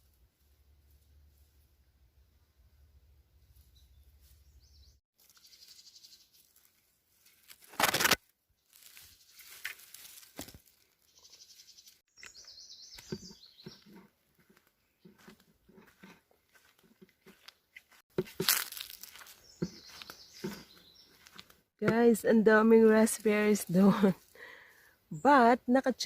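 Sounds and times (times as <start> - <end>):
rustling of bushes while picking: 3.4 - 24.4
high bird chirps: 11.1 - 14.0, 19.1 - 21.4.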